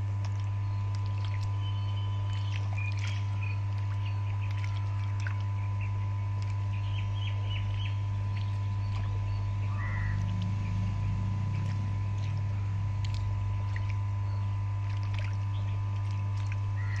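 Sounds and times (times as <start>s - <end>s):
steady low hum: 0.0s - 17.0s
birds chirping: 1.5s - 5.0s, 5.6s - 12.6s, 15.2s - 16.2s, 16.8s - 17.0s.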